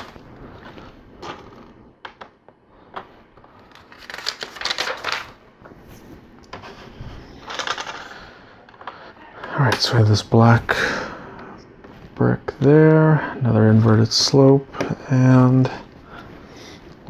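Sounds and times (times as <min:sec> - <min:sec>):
plastic bricks clicking and rattling: 0:07.4 - 0:09.0.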